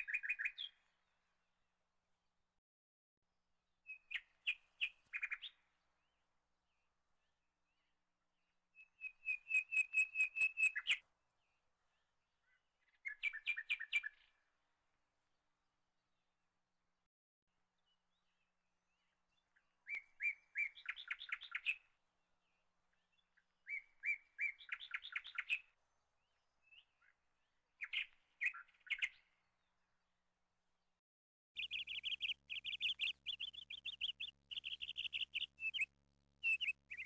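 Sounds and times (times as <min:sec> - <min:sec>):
small bird chirping: 0:00.0 - 0:00.8, 0:03.9 - 0:05.7, 0:08.8 - 0:11.0, 0:12.4 - 0:14.3, 0:19.0 - 0:21.9, 0:22.9 - 0:27.2, 0:27.8 - 0:29.4, 0:31.6 - 0:37.0.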